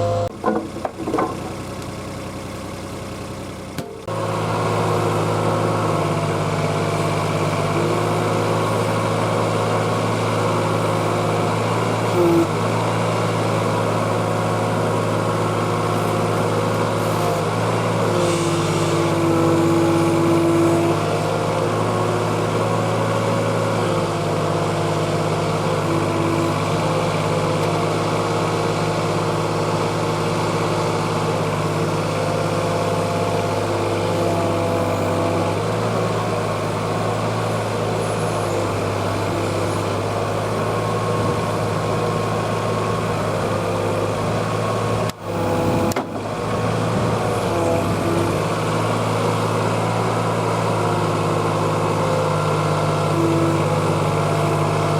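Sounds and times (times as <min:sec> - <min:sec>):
hydraulic whine: 0:00.0 - 0:01.6, 0:03.8 - 0:13.0, 0:14.0 - 0:22.8, 0:31.1 - 0:52.0
diesel engine running: 0:00.0 - 0:54.9.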